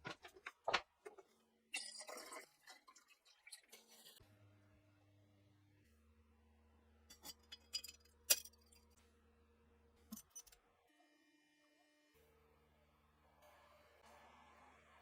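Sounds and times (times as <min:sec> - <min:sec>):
metal parts clicking and clinking: 0:07.1 - 0:08.9.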